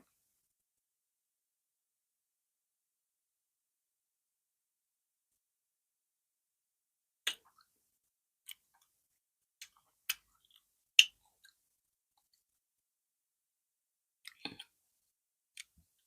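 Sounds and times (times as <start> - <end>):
wet mouth clicks and lip smacks: 14.2 - 14.7.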